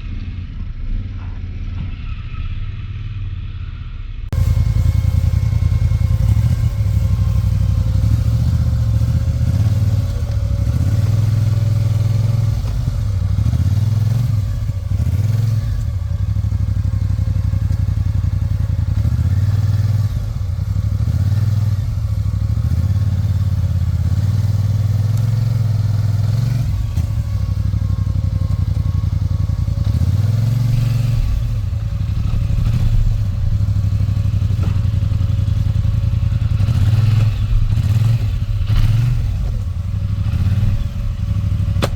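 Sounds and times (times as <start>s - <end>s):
atv engine revving: 4.3s - 41.9s.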